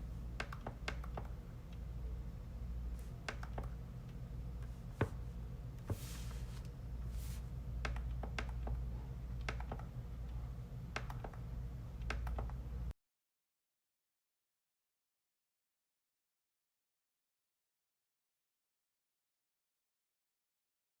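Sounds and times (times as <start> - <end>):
steady low hum: 0.0 - 12.9
computer mouse clicks: 0.4 - 1.8, 3.2 - 3.8, 7.8 - 8.8, 9.4 - 9.9, 11.0 - 11.4, 12.0 - 12.6.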